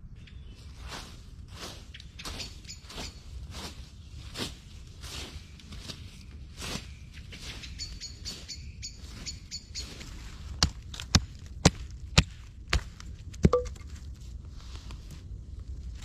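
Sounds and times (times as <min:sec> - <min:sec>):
bird chirping: 0:00.0 - 0:00.9, 0:01.8 - 0:03.4, 0:05.3 - 0:10.2
hand tool chopping wood: 0:10.6 - 0:13.8.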